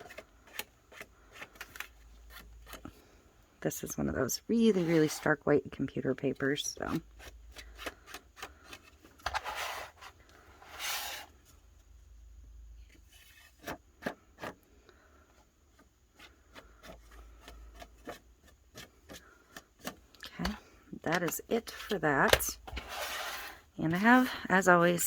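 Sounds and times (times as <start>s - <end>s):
applicator scuffing along paper: 21.2s - 24.2s.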